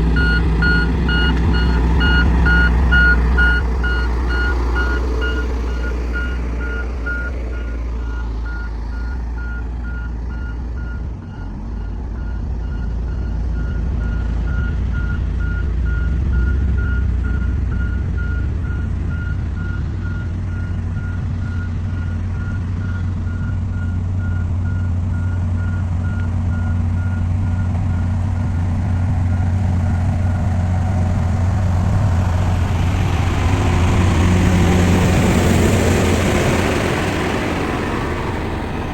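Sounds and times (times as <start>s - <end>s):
bulldozer diesel engine running: 0.0s - 38.9s
reverse alarm beeping: 0.2s - 11.9s.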